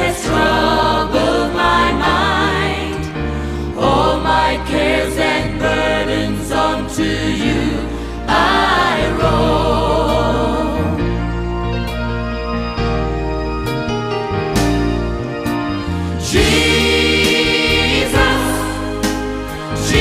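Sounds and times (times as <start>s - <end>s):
gospel singing with vibrato: 0.0s - 11.8s, 15.8s - 20.0s
instrumental backing with bass: 0.0s - 20.0s.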